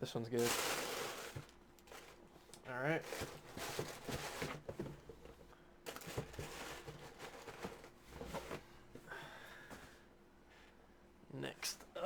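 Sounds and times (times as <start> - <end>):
packaging rustling and crinkling: 0.3 - 2.2, 2.9 - 4.8, 5.9 - 8.5.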